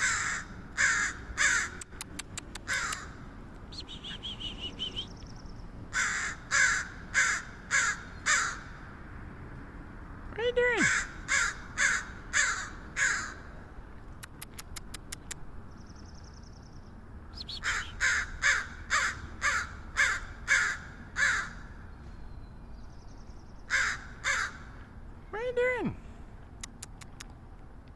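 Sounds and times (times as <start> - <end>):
crow cawing: 0.0 - 1.8, 2.7 - 3.2, 5.9 - 8.8, 10.8 - 13.5, 17.6 - 21.8, 23.7 - 24.8
sharp clicks: 1.8 - 3.1, 14.1 - 15.4, 26.6 - 27.9.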